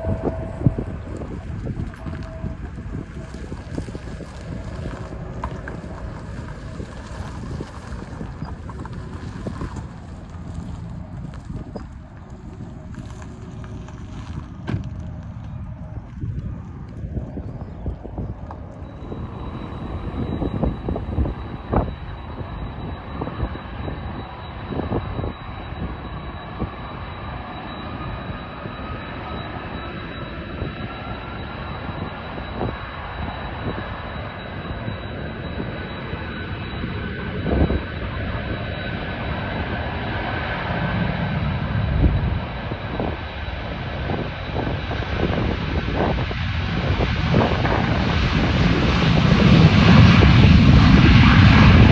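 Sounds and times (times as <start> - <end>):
jet engines running: 0.0 - 51.9
wind thumps on microphone: 16.1 - 22.5.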